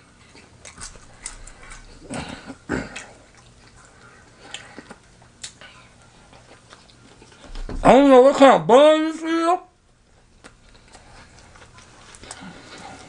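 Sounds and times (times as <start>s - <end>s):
man chewing: 0.0s - 7.7s, 9.9s - 13.0s
wet mouth clicks and smacks: 4.4s - 5.6s.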